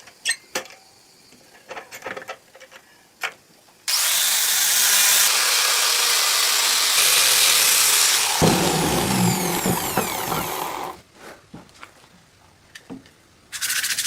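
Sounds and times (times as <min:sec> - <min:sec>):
power tool running: 0:03.9 - 0:11.0.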